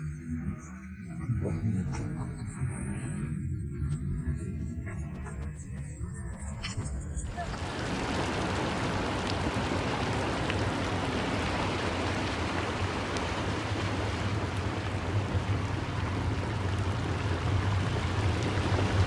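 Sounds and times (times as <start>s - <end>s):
low rumble: 1.1s - 19.0s
heavy rain falling: 7.4s - 19.0s.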